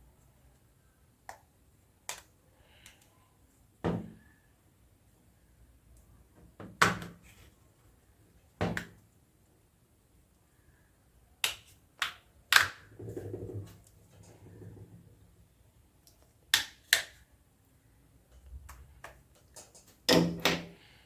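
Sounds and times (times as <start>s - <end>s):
plastic clicks and snaps: 1.2s - 3.1s.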